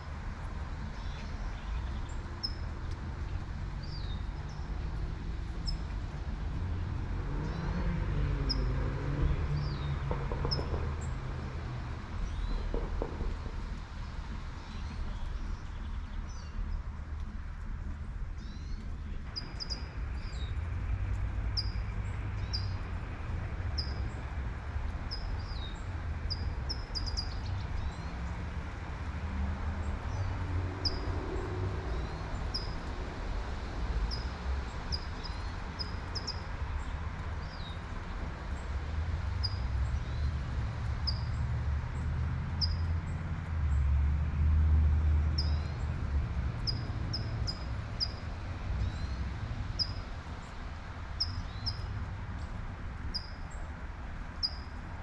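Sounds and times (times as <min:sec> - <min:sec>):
low traffic rumble: 0:00.0 - 0:55.0
car passing: 0:06.0 - 0:12.5, 0:27.8 - 0:52.2.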